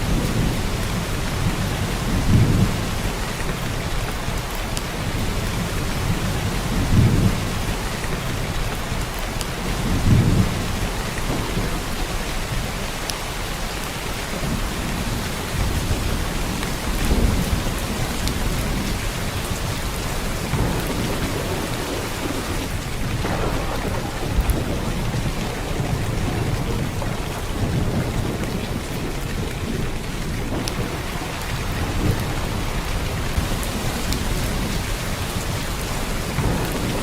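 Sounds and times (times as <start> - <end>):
heavy rain downpour: 0.0 - 37.0.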